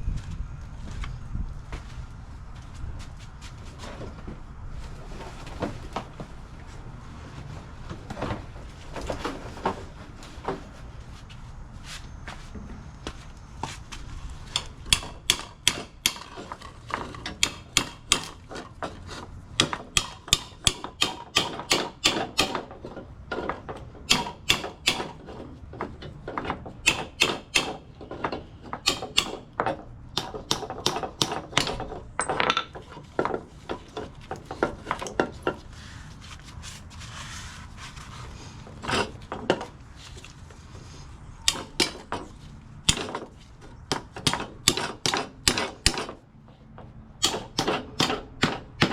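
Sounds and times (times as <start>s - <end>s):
hammer striking metal: 14.6s - 16.3s, 17.4s - 18.4s, 19.6s - 22.6s, 24.1s - 25.2s, 26.8s - 27.9s, 28.8s - 29.5s, 41.5s - 42.2s, 43.9s - 46.2s, 47.2s - 48.9s.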